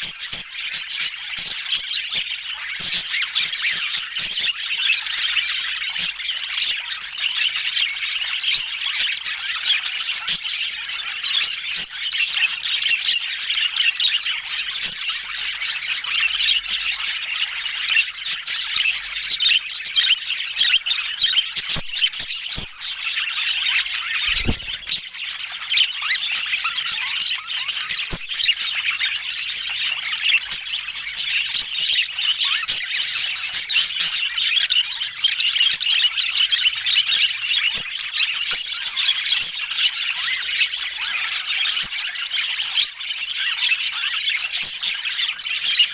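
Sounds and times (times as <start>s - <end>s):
budgerigars chattering: 24.2s - 25.1s
dull thump: 24.3s - 25.0s.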